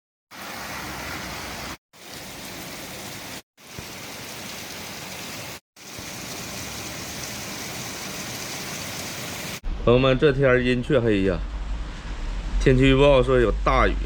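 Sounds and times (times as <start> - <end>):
heavy rain falling: 0.3 - 9.6.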